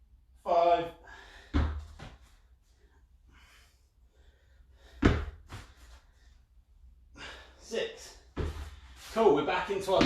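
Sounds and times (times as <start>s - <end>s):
person breathing hard: 1.0s - 1.9s, 2.8s - 6.5s, 7.1s - 7.6s.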